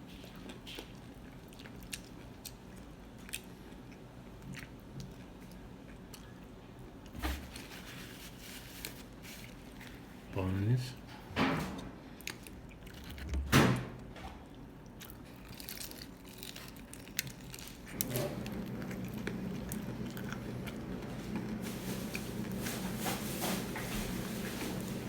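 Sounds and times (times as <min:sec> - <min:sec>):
chewing: 0:00.1 - 0:07.1, 0:12.1 - 0:13.4, 0:14.4 - 0:25.0
steady low hum: 0:17.0 - 0:25.0.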